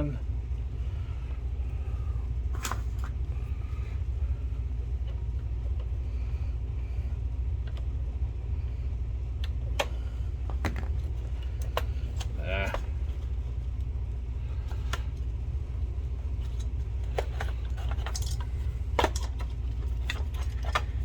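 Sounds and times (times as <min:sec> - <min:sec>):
plastic parts clicking: 0:16.4 - 0:21.0.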